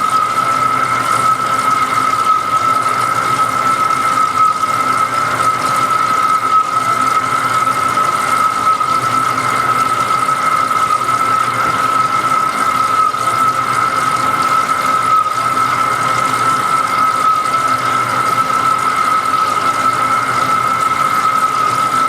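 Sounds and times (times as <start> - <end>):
lathe high whine: 0.0 - 22.0.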